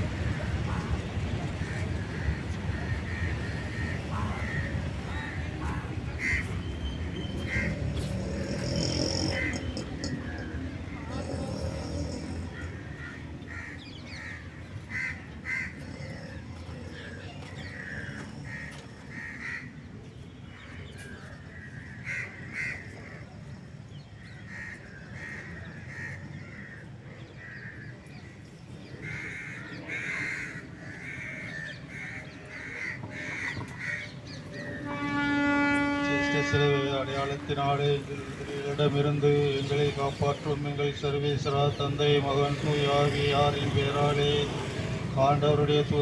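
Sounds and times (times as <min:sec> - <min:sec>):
crow-like bird caws: 0:01.6 - 0:06.5, 0:12.5 - 0:16.2, 0:17.7 - 0:19.7, 0:21.7 - 0:22.9, 0:29.0 - 0:34.2.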